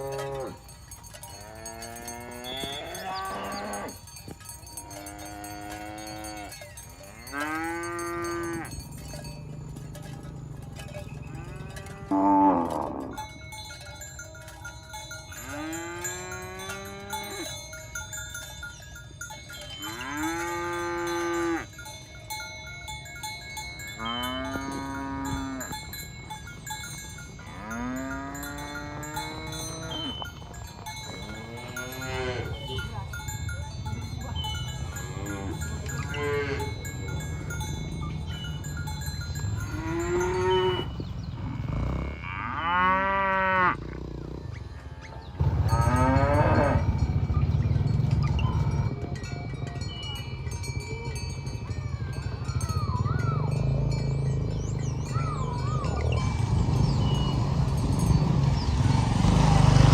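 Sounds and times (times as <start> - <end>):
cattle mooing: 0.0 - 0.7, 1.4 - 4.0, 4.7 - 8.9, 11.3 - 13.2, 15.4 - 17.5, 19.8 - 21.7, 24.0 - 25.8, 27.4 - 30.2, 31.2 - 33.0, 34.8 - 36.8, 39.5 - 44.8, 45.4 - 47.5.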